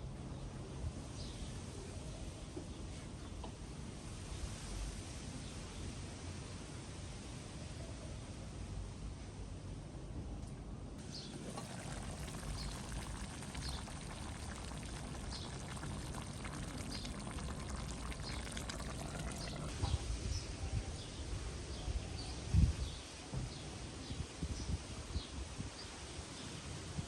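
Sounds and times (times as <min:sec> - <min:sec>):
outdoor cooking hiss: 0:11.0 - 0:20.5.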